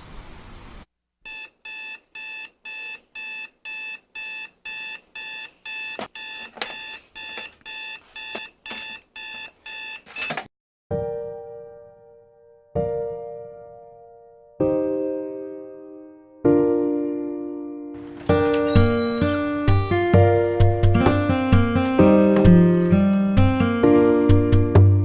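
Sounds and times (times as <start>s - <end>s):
alarm clock beeping: 1.3s - 10.3s.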